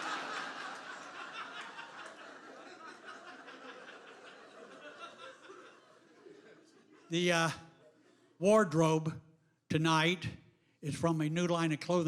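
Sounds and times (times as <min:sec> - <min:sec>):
audience laughing: 0:00.0 - 0:07.1.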